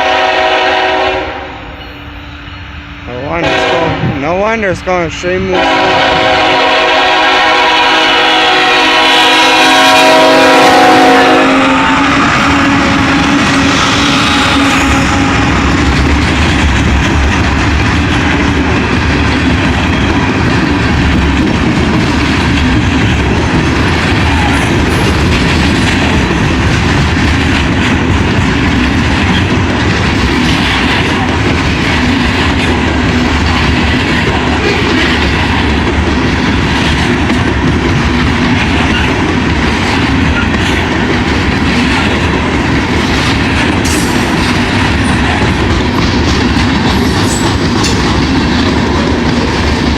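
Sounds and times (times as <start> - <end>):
wheels clacking over rail joints: 13.4 - 49.9.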